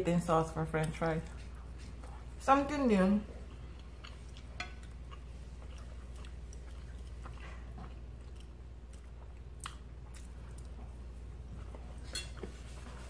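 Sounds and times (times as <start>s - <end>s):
steady low hum: 0.0s - 13.0s
chewing and biting food: 3.3s - 12.5s.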